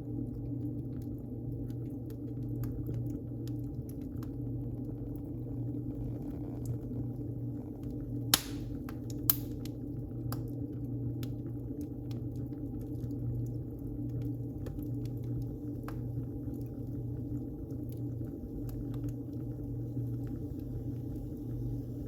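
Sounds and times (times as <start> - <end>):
wood fire crackling: 0.2 - 22.0
loud fire pops: 8.3 - 9.8.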